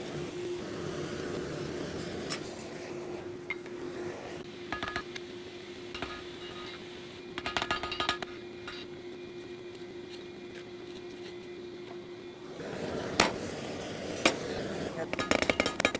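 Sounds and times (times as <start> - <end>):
steady hum: 0.0 - 15.9
steel clinking and rattling: 14.2 - 15.9.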